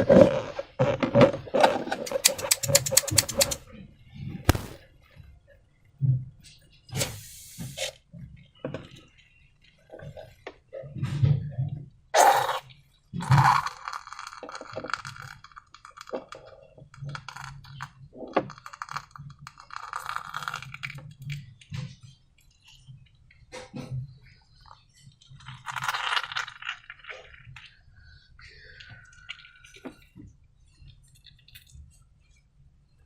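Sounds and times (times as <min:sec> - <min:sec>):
rustling: 0:04.5 - 0:04.8.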